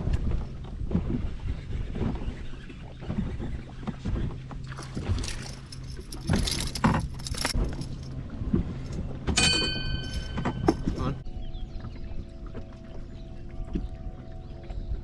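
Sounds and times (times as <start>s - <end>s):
low hum: 0.0s - 15.0s
metallic jangling and clinking: 4.6s - 8.2s, 8.9s - 11.2s
metallic ring: 9.4s - 11.2s.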